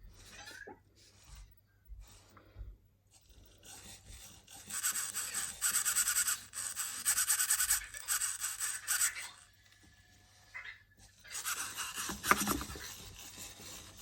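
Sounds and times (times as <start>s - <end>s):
small servo motors buzzing: 3.1s - 14.0s.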